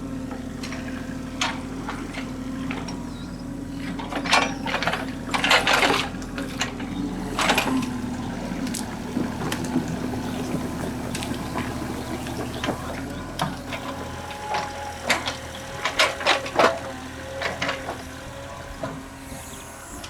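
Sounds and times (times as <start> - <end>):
excavator running: 0.0 - 20.0.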